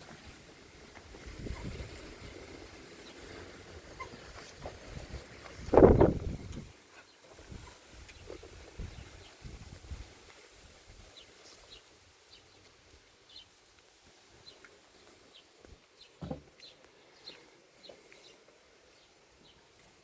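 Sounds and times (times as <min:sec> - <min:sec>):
small birds chirping: 0:00.0 - 0:20.0
soft thump: 0:16.2 - 0:16.5.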